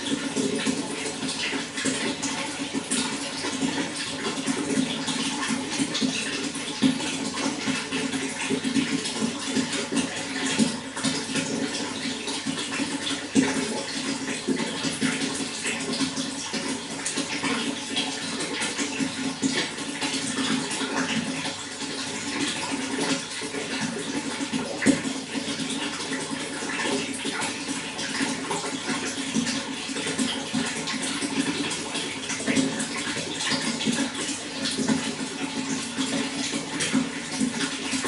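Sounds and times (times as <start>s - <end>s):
water rushing and splashing: 0.0s - 18.8s.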